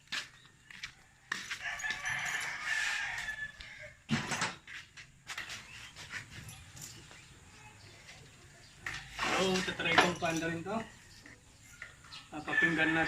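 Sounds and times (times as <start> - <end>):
rooster crowing: 1.4 - 4.1, 12.4 - 13.0.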